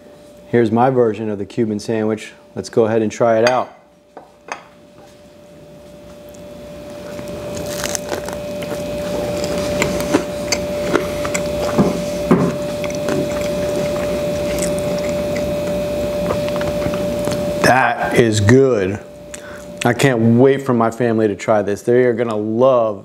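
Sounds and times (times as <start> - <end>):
steady hum and hiss: 0.0 - 23.0
person chewing crunchy sandwich: 6.2 - 17.6.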